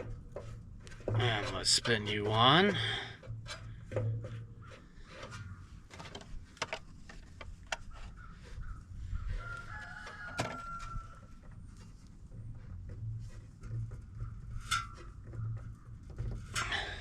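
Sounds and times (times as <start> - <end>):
oil filter clicking and scraping: 0.0 - 17.0
rooster crowing: 9.2 - 11.4.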